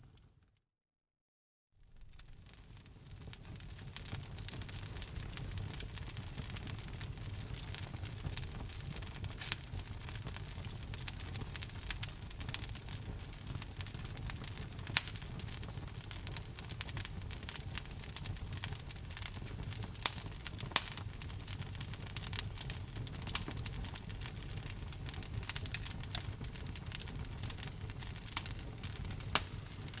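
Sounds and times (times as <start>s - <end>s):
fire popping: 1.8s - 30.0s
low rumble of fire: 1.8s - 30.0s
logs crackling in a fireplace: 1.9s - 30.0s.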